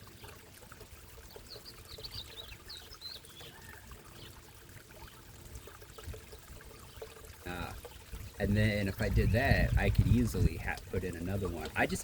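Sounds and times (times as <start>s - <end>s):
water pouring into pond: 0.0s - 12.0s
bird chirping: 1.3s - 4.4s.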